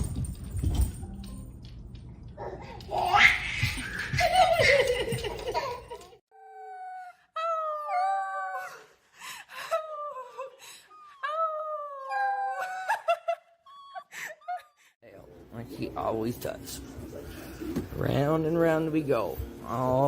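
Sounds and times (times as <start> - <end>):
people laughing: 3.9 - 6.2.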